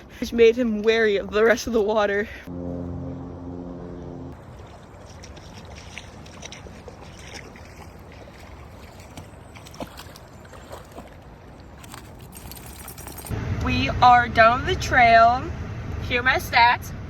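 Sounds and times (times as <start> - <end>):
stream water running: 4.0 - 13.4
small splashes and clicks: 4.4 - 13.3.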